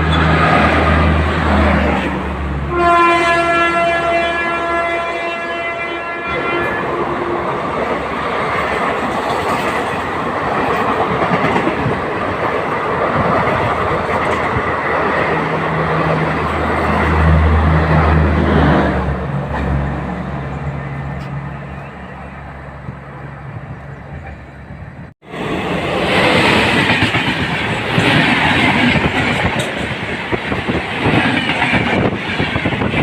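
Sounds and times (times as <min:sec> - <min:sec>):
train rumble and wheel clatter: 0:00.0 - 0:33.0
train horn: 0:02.6 - 0:07.6.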